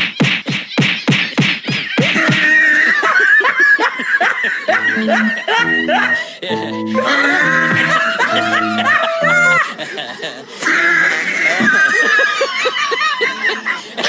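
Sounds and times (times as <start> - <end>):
person laughing: 0.4 - 10.6
background music: 4.7 - 10.1
wavering pitched tones: 4.8 - 10.1.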